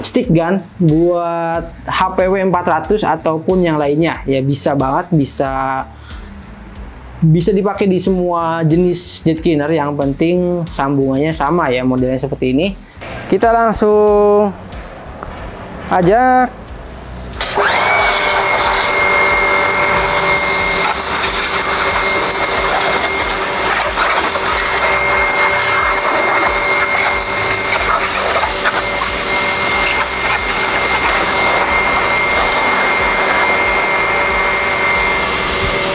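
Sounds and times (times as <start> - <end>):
pressure washer motor whine: 13.0 - 13.5, 14.2 - 35.9.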